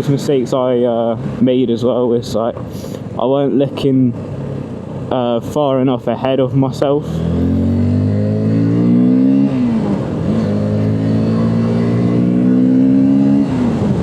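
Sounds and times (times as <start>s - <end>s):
motorcycle engine accelerating: 6.6s - 14.0s.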